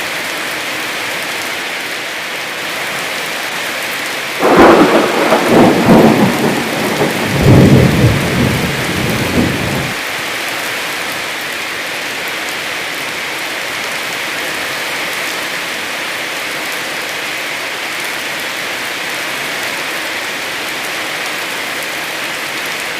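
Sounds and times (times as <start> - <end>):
heavy rain falling: 0.0 - 22.9
thunder crack: 4.4 - 10.0.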